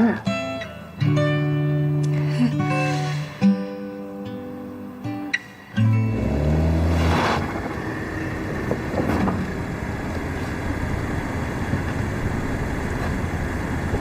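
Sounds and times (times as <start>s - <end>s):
road traffic noise: 5.4s - 14.0s
vehicle engine humming: 5.5s - 14.0s.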